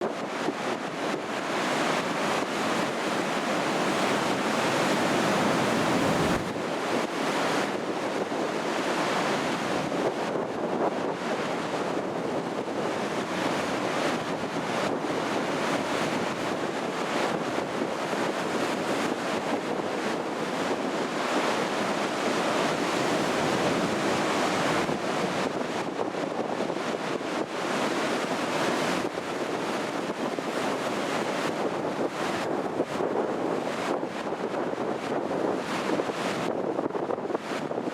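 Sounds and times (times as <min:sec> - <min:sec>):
wind rushing over microphone: 0:00.0 - 0:37.9
waves breaking: 0:00.4 - 0:07.1.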